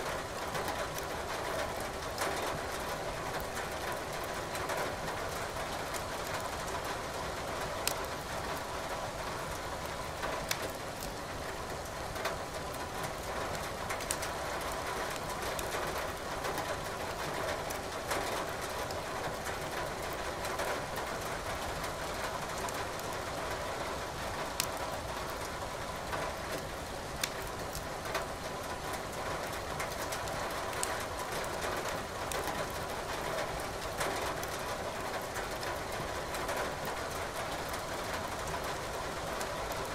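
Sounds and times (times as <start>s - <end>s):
rain hiss: 0.0s - 39.9s
wood fire crackling and popping: 7.8s - 8.2s, 10.4s - 11.2s, 14.0s - 14.2s, 24.5s - 24.8s, 27.2s - 27.8s, 30.1s - 30.9s, 32.3s - 32.5s.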